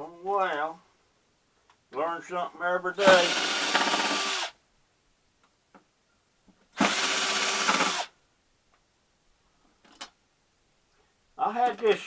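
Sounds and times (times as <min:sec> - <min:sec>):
power drill running: 0:03.0 - 0:04.5, 0:06.8 - 0:08.1.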